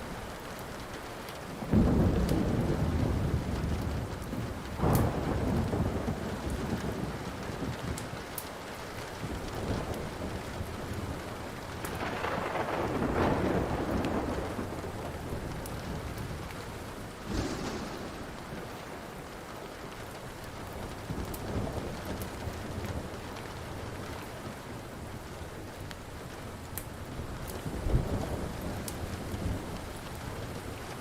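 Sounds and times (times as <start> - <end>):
steady rain: 0.0 - 31.0
wood fire crackling: 0.0 - 31.0
thunder rumbling: 1.7 - 8.3, 9.1 - 24.6
sharp thunder crack: 1.8 - 3.6, 4.8 - 6.2, 17.2 - 20.0.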